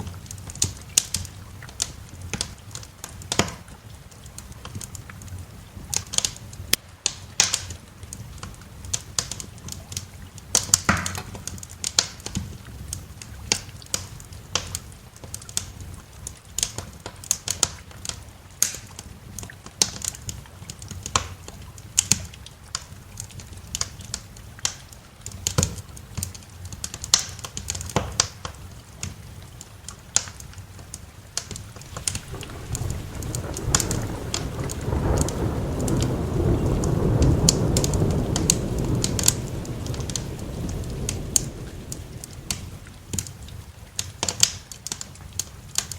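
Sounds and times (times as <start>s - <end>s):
rain: 0.0s - 45.9s
wood fire crackling: 0.0s - 45.9s
thunder rolling: 31.7s - 43.8s.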